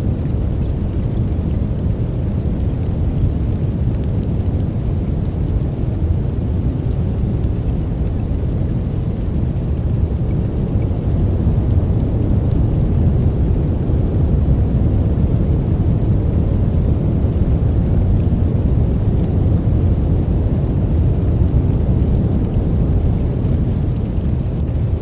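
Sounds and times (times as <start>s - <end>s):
deep white noise rushing: 6.7s - 25.0s.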